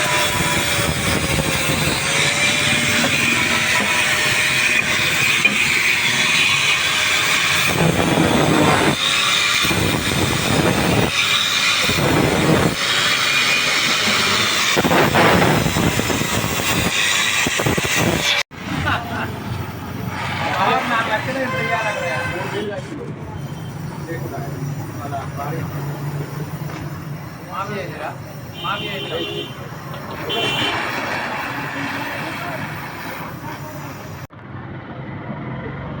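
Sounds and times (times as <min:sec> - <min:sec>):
loud rushes: 0:00.0 - 0:21.6
torch flame hissing: 0:00.0 - 0:21.7, 0:23.3 - 0:34.3.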